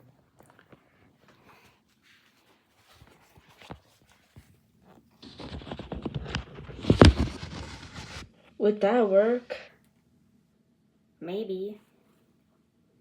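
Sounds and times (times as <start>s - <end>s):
rustling against microphone: 1.9s - 8.4s.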